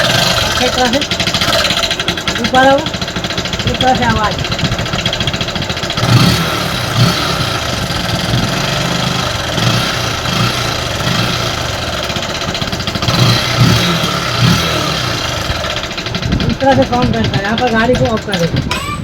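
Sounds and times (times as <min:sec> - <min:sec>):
mechanical clatter: 0:00.0 - 0:19.0
motorcycle engine idling: 0:00.0 - 0:19.0.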